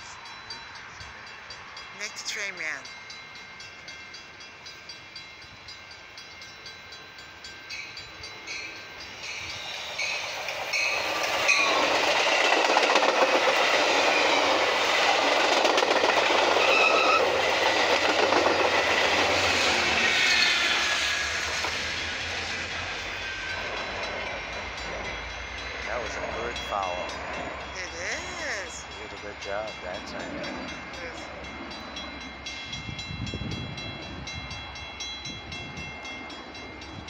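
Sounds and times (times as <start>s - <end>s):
passenger train passing: 0.0s - 37.0s.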